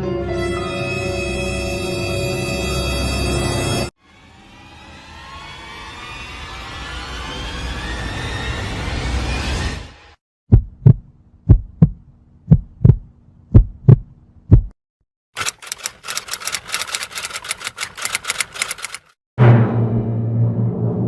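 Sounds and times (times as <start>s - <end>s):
heartbeat thumps: 10.5s - 14.8s
typing clicks: 15.4s - 19.1s.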